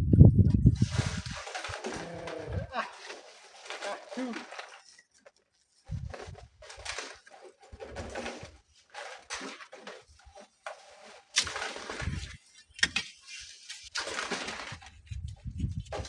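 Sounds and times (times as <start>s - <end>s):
gusty wind buffeting microphone: 0.0s - 1.4s, 15.0s - 16.0s
rustling noise: 0.1s - 16.0s.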